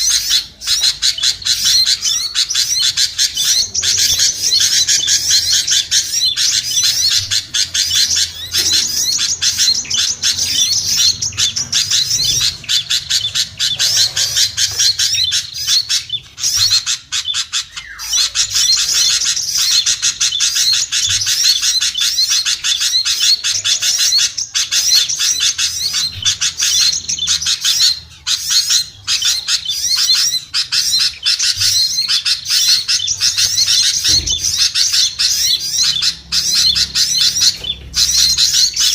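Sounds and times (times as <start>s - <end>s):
small songbirds chirping: 0.0s - 38.9s.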